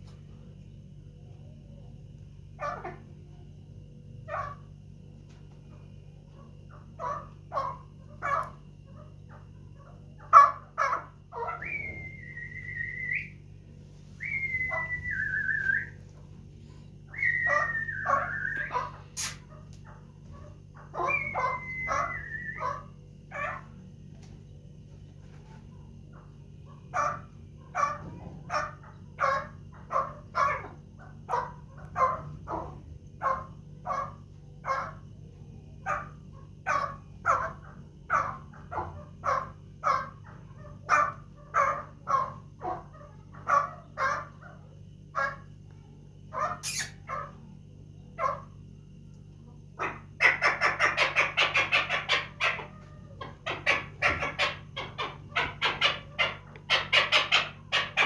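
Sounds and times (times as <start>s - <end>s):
partridge clucking calls: 17.1s - 23.7s, 46.4s - 47.1s, 49.8s - 58.0s.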